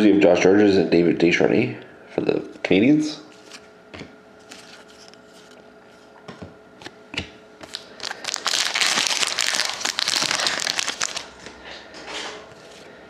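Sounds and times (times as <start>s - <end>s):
foil wrapper crinkling and tearing: 7.6s - 11.4s.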